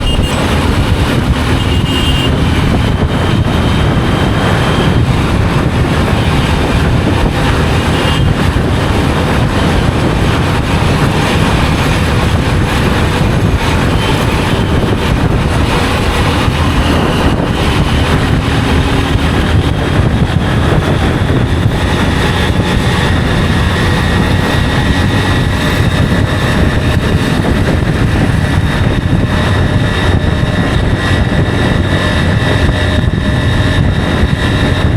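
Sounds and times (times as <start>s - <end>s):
motorcycle engine running: 0.0s - 34.9s
wind rush on microphone: 0.0s - 34.9s.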